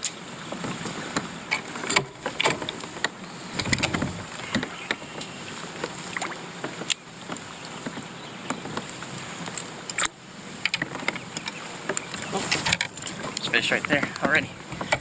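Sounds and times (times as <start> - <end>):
boat moving through water: 0.0 - 15.0
sharp clicks and knocks: 1.5 - 5.3.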